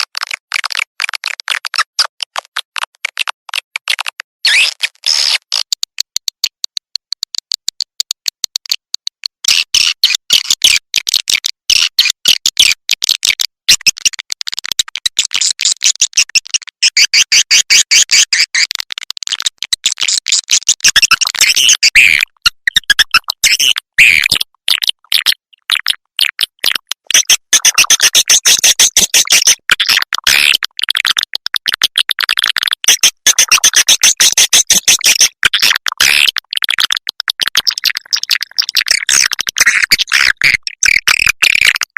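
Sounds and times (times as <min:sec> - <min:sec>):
swiftlet chirps and clicks: 0:05.5 - 0:10.3, 0:20.5 - 0:41.9.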